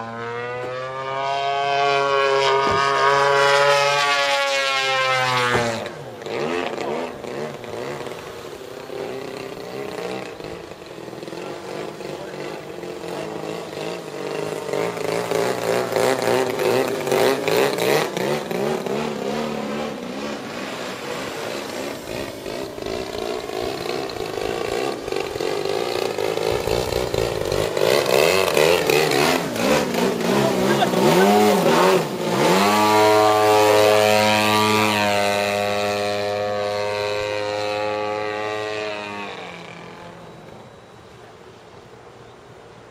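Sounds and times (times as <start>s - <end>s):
model plane engine in flight: 0.0s - 42.9s.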